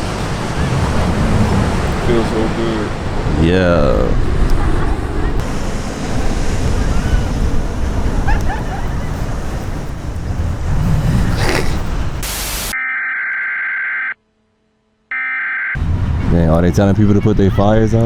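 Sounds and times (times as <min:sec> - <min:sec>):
rushing beach night noise: 0:00.0 - 0:12.8.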